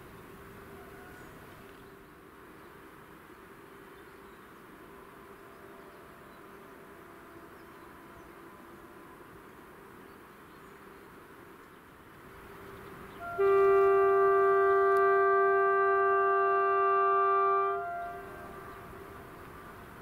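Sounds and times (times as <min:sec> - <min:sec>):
train horn blast: 0:06.9 - 0:09.0, 0:13.1 - 0:20.0.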